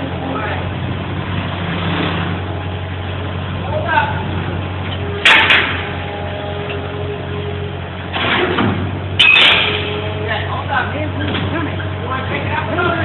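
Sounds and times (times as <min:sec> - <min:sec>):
skid-steer engine running: 0:00.0 - 0:13.0
rough clatter: 0:04.8 - 0:06.0
loud bangs: 0:05.1 - 0:06.0.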